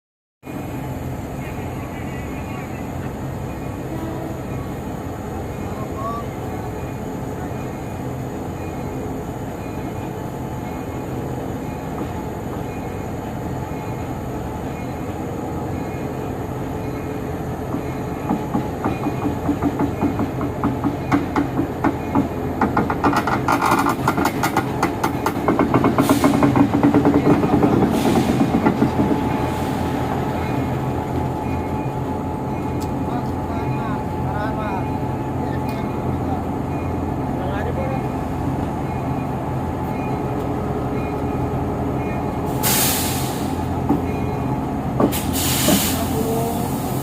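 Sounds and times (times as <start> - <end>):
diesel locomotive engine running: 0.4 - 47.0
metallic clicks and clanks of wheels: 19.0 - 29.1
short hissing bursts: 42.5 - 43.7, 45.1 - 47.0.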